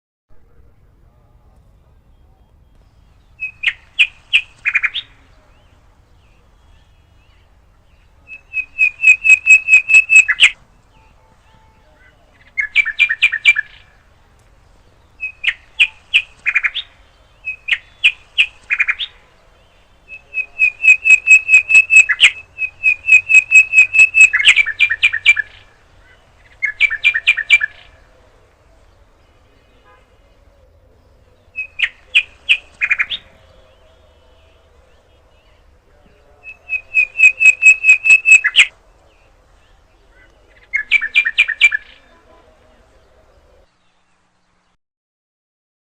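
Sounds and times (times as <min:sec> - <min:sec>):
bird chirping rapidly: 0:02.6 - 0:11.2, 0:12.3 - 0:14.0, 0:15.0 - 0:19.2, 0:19.9 - 0:27.9, 0:31.5 - 0:33.3, 0:36.4 - 0:38.7, 0:40.5 - 0:42.1.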